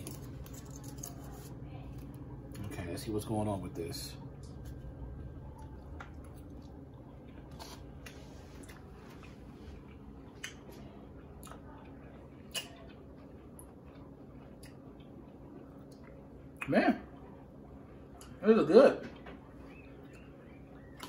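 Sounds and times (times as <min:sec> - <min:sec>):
low room hum: 0:00.0 - 0:21.0
quiet chewing: 0:04.3 - 0:18.4, 0:19.0 - 0:21.0.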